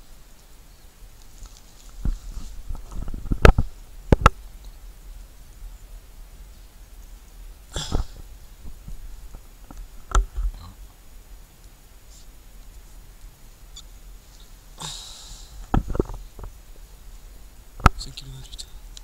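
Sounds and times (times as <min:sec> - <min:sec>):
brief rustle: 0:01.2 - 0:04.8.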